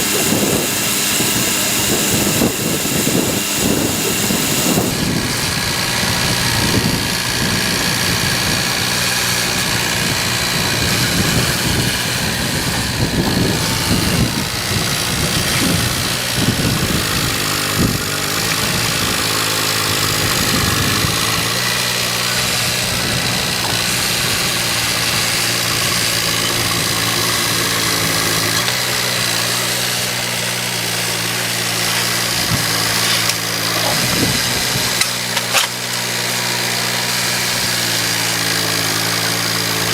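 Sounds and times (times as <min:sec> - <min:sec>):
vehicle engine idling: 0:00.0 - 0:39.9.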